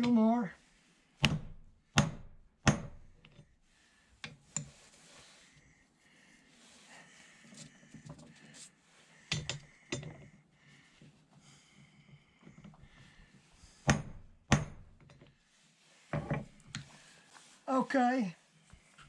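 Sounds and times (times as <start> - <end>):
hammer knocking on metal: 1.2 - 3.0.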